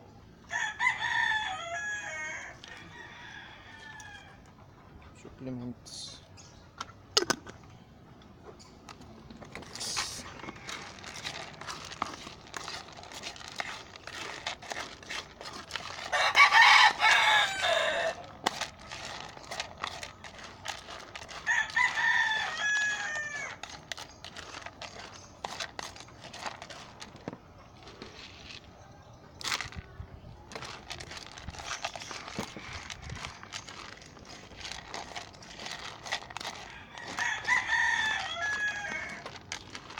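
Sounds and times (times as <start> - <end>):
roosters crowing: 0.4 - 4.6, 9.8 - 28.6, 30.6 - 39.9
chickens clucking: 4.0 - 21.8.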